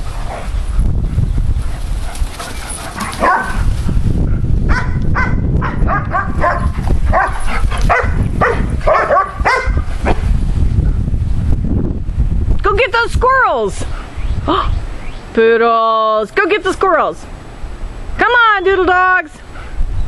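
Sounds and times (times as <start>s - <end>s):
wind noise on microphone: 0.0s - 15.6s, 16.4s - 20.0s
dogs barking: 2.4s - 3.7s, 4.7s - 10.2s.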